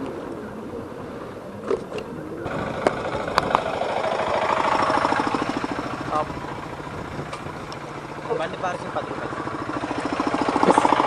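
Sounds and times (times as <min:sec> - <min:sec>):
motorcycle engine running: 0:02.4 - 0:11.0.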